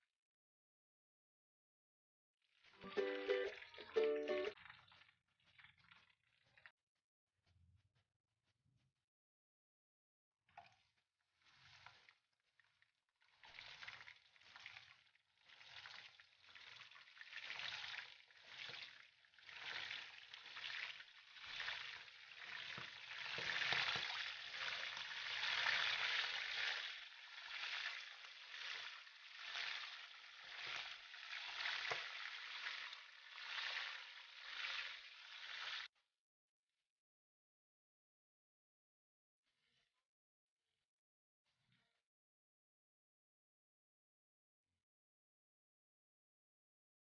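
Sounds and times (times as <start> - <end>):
livers sizzling in hot oil: 2.5 - 6.7, 11.3 - 35.9.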